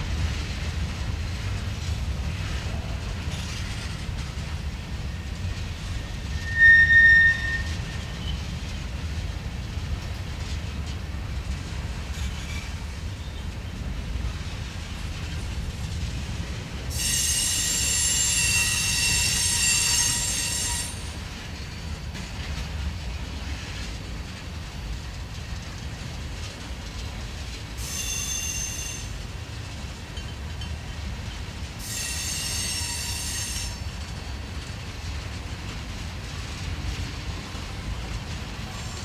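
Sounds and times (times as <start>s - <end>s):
freight train wheels rumbling: 0.0s - 39.0s
train wheels squealing: 5.0s - 8.7s, 12.1s - 13.8s, 16.9s - 22.0s, 27.8s - 29.4s, 30.0s - 34.3s, 38.7s - 39.0s.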